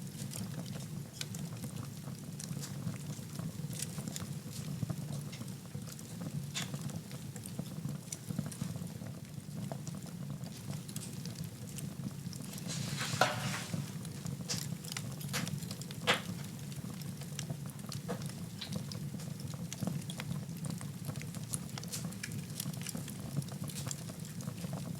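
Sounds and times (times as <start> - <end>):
fire crackling: 0.0 - 24.9
fire hissing: 12.5 - 14.0
sharp pops from fire: 12.5 - 16.6.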